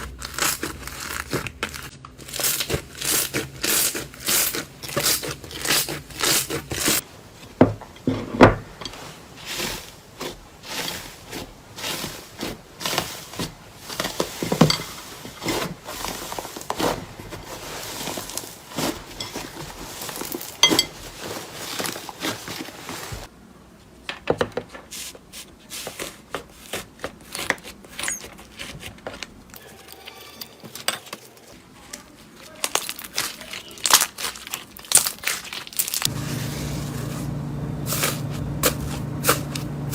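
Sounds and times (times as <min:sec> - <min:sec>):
slime crackling and popping: 0:00.0 - 0:06.9, 0:32.6 - 0:36.1.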